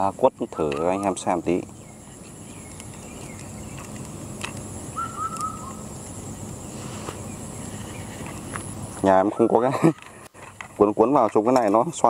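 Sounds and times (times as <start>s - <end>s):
bird chirps: 0.0s - 4.2s, 4.8s - 6.0s, 6.6s - 9.7s
insect hiss: 0.0s - 12.0s.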